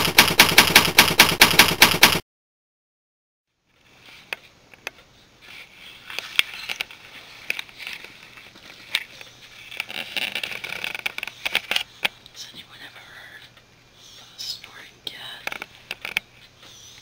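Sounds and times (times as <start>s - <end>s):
camera handling clicks and rustles: 6.1s - 12.1s.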